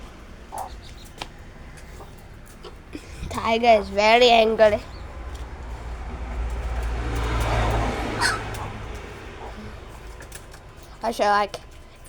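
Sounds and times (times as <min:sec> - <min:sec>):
harsh raspy animal call: 0:07.5 - 0:09.9.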